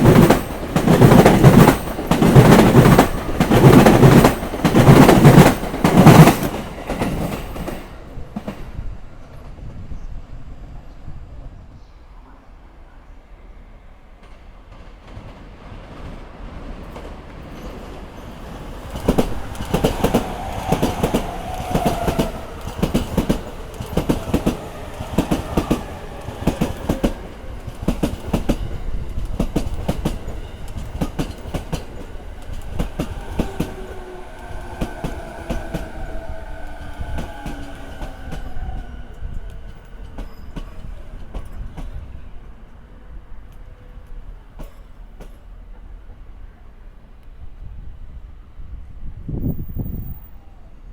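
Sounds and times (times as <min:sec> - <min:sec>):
train wheels knocking over rail joints: 0:00.0 - 0:07.8, 0:18.9 - 0:36.2
train falling whine: 0:17.5 - 0:42.0.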